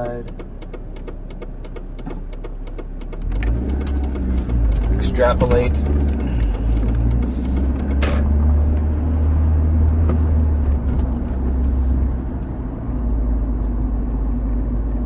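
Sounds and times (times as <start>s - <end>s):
low rumble: 3.4s - 15.0s.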